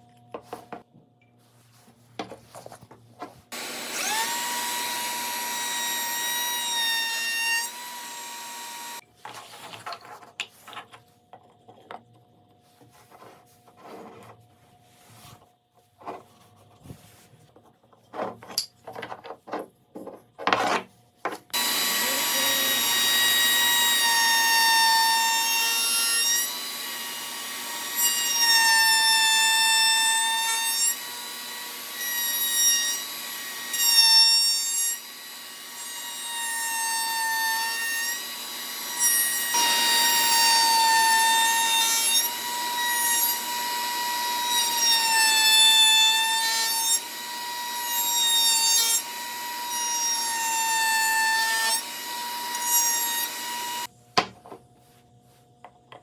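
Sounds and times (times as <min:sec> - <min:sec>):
power tool whining cutting wood: 0:03.5 - 0:09.0, 0:21.5 - 0:53.9.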